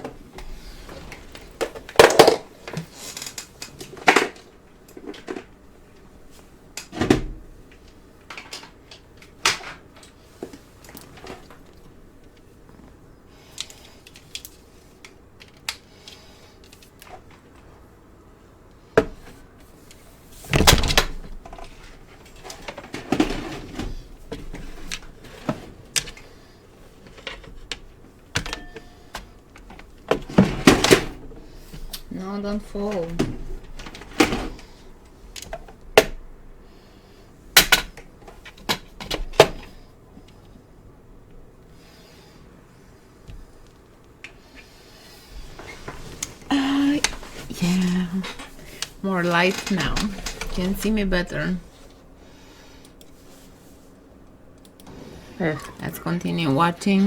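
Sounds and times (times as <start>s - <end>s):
objects knocking and rattling: 0.0s - 6.1s, 20.4s - 26.2s, 27.0s - 31.9s.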